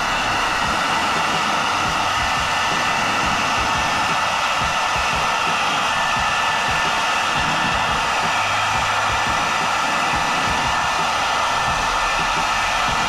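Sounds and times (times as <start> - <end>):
faint motor whine: 0.0 - 13.0
hair dryer running: 0.0 - 13.0.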